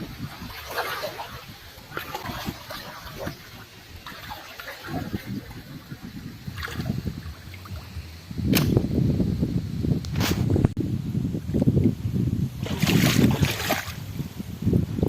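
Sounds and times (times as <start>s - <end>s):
shallow water splashing: 0.0s - 8.2s, 12.6s - 14.0s
sharp splash: 0.2s - 5.3s, 12.6s - 14.0s.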